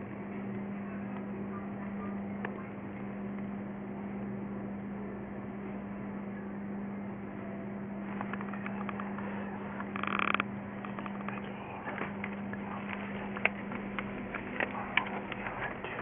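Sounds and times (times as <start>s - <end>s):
steady low hum: 0.0s - 16.0s
faint clicks: 8.2s - 16.0s.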